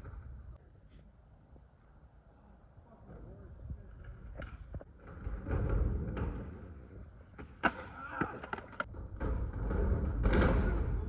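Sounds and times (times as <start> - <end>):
skateboard wheels rumbling: 3.8 - 11.0
skateboard clack: 3.9 - 11.0.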